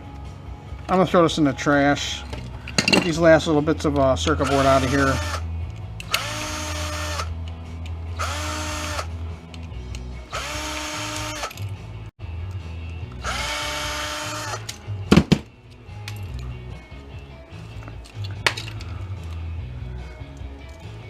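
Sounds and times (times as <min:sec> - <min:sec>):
electric drill bursts: 0:04.4 - 0:05.5, 0:06.1 - 0:07.3, 0:08.2 - 0:09.1, 0:10.3 - 0:11.5, 0:13.2 - 0:14.7.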